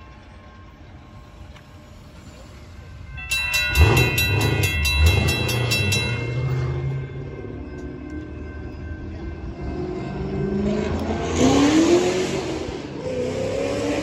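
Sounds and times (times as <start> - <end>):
car engine accelerating hard: 3.7 - 7.0, 10.5 - 14.0.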